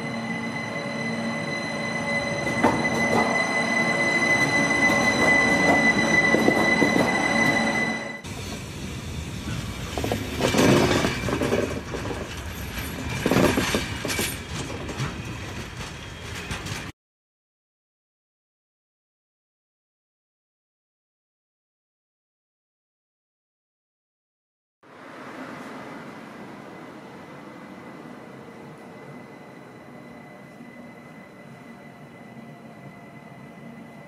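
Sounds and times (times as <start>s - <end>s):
railcar rumble: 0.0s - 16.9s, 24.8s - 34.0s.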